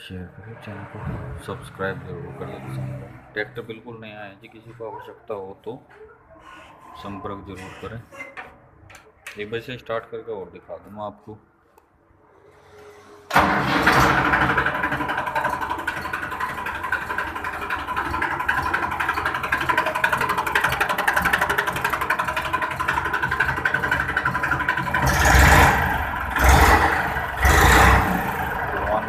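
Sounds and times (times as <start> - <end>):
tractor diesel engine idling: 13.3 - 29.0.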